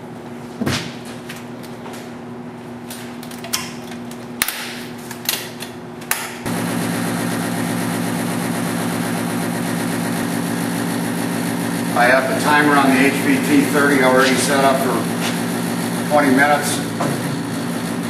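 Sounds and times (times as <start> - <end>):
vacuum tumbler motor humming: 6.5 - 18.0.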